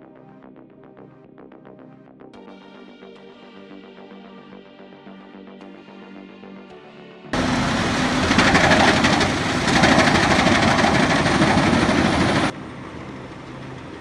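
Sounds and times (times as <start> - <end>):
engine running: 7.4 - 14.0
wood-processing machinery din: 7.4 - 14.0.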